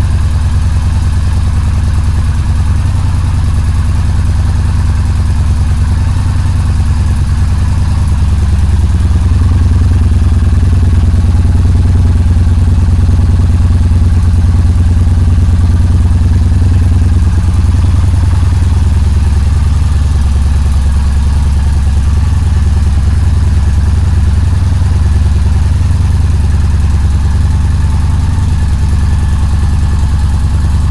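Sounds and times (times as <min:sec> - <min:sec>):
motorcycle engine idling: 0:00.0 - 0:30.9.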